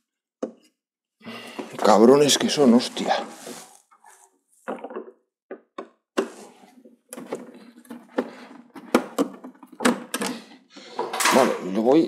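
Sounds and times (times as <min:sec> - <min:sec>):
knocks and clatters of tv casing: 0:04.6 - 0:06.3, 0:07.1 - 0:10.5.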